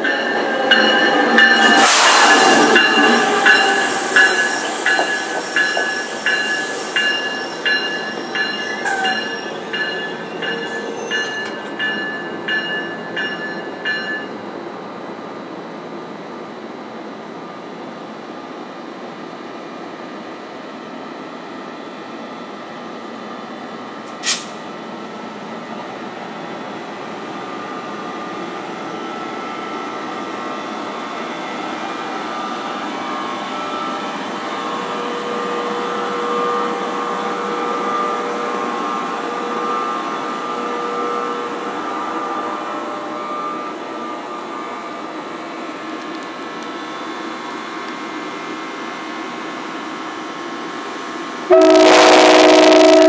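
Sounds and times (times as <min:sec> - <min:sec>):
train wheels rumbling on rails: 0:00.0 - 0:14.4
locomotive whine: 0:00.0 - 0:53.0.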